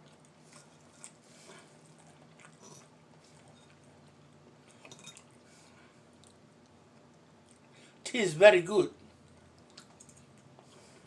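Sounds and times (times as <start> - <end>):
chewing noodles: 0.0 - 7.8, 9.0 - 11.0.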